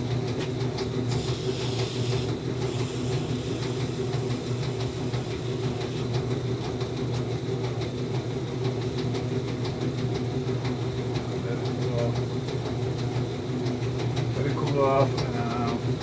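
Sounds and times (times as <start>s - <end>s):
motor humming: 0.0s - 8.9s.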